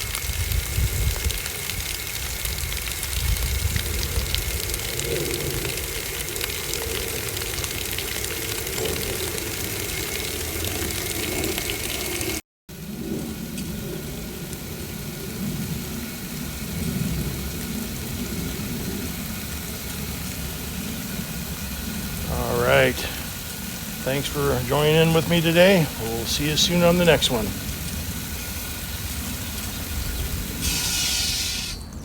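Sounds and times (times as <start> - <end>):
water spray splashing: 19.5 - 32.0.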